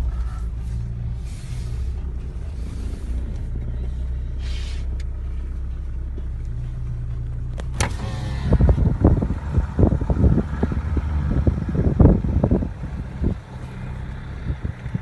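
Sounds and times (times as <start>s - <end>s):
diesel engine running: 0.0s - 15.0s
brief hiss: 4.4s - 4.9s.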